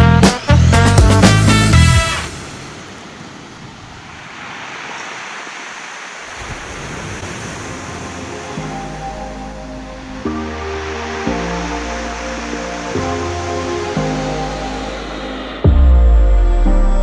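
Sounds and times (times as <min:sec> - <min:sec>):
music: 0:00.0 - 0:02.4, 0:08.1 - 0:17.0
sea surf rushing: 0:00.0 - 0:16.0.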